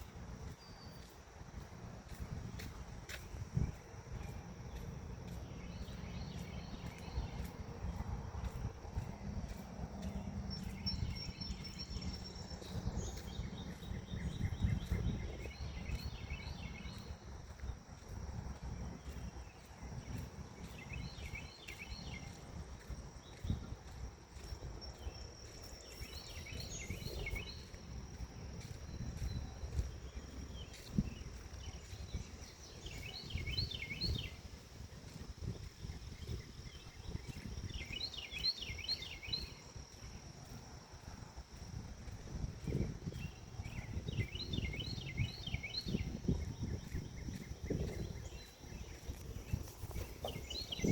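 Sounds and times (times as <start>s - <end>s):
high insect trill: 0.0s - 50.9s
low wind rumble: 0.0s - 50.9s
bird chirping: 3.7s - 17.2s, 42.7s - 50.9s.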